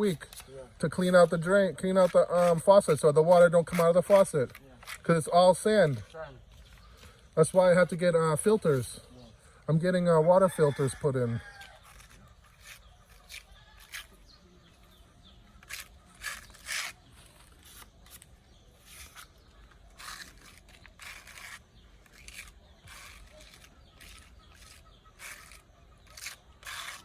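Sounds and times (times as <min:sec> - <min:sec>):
short scraping strokes: 0:11.6 - 0:27.0.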